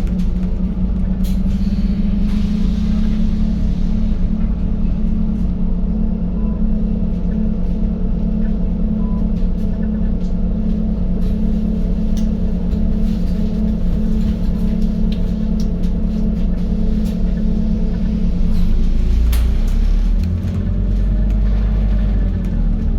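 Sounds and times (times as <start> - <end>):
bus engine droning: 0.0 - 22.9.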